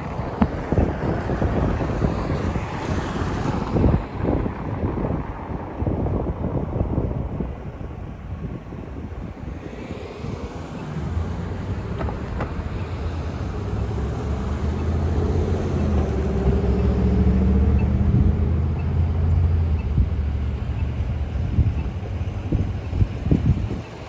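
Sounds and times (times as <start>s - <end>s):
vehicle driving past: 9.5s - 22.7s.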